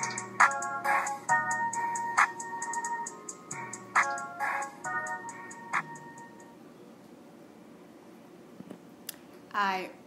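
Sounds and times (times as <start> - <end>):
hi-hat ticks: 0.0 - 0.7, 1.3 - 4.3
hip-hop beat: 0.0 - 6.5.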